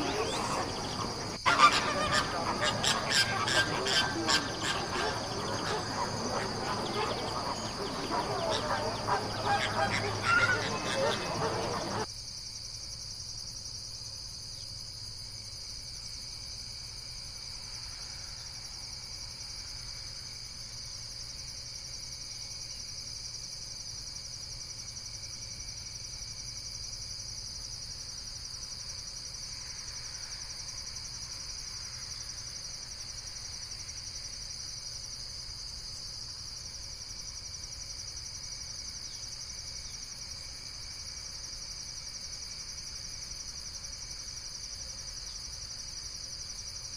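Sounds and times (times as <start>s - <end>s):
insects trilling: 0.0s - 12.5s, 25.0s - 46.9s.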